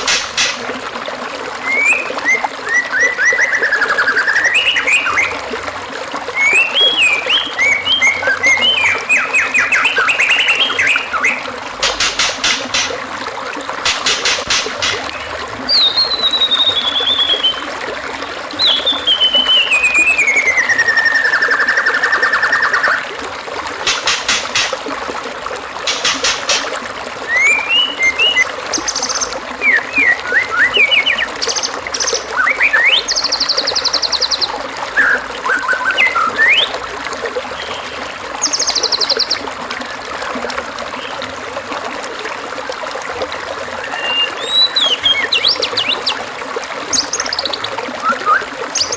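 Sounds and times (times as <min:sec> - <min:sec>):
running water trickling: 0:00.0 - 0:48.9
birdsong whistles and trills: 0:01.6 - 0:05.4, 0:06.3 - 0:13.0, 0:13.9 - 0:23.1, 0:25.9 - 0:36.8, 0:37.6 - 0:39.5, 0:43.6 - 0:48.9.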